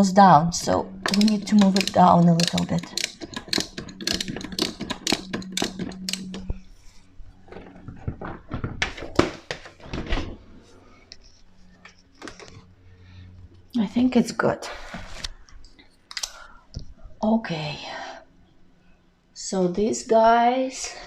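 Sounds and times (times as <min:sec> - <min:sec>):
hand tool rapid clicking: 0:01.0 - 0:06.4.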